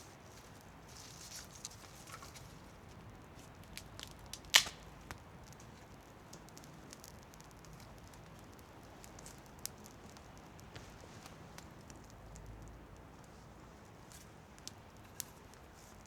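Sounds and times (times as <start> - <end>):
wood fire crackling: 0.0 - 16.0
loud sharp crack: 4.4 - 4.9.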